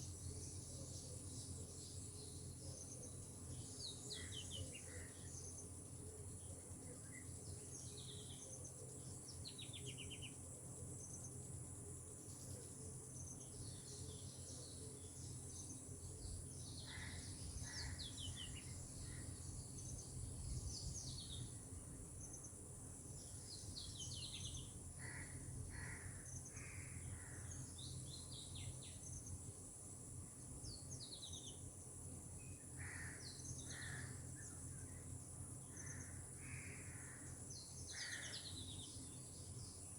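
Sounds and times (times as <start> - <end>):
birds chirping and trilling: 16.5 - 21.6, 35.7 - 39.8.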